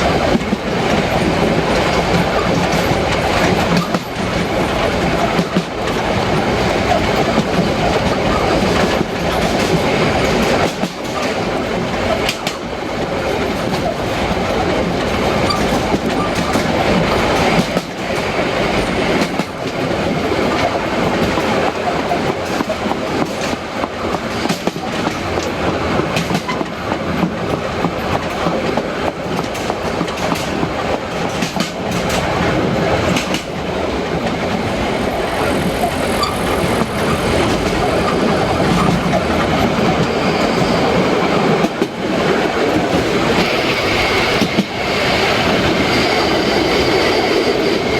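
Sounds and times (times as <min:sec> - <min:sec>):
train running on track: 0:00.0 - 0:47.9
wheels clicking over rail joints: 0:00.2 - 0:34.6.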